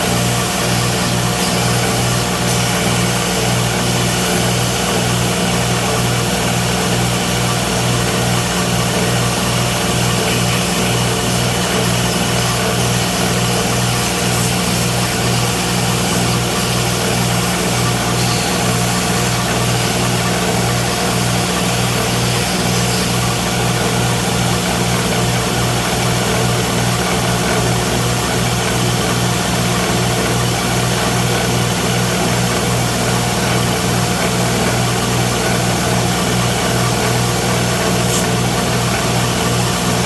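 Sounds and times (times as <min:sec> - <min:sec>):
electric motor humming: 0:08.8 - 0:24.0.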